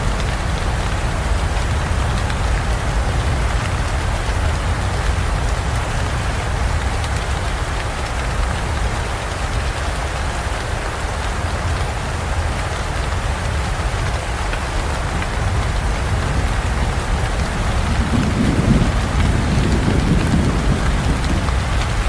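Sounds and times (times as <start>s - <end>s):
heavy rain falling: 0.0s - 22.0s
low rumble of thunder: 14.0s - 22.0s.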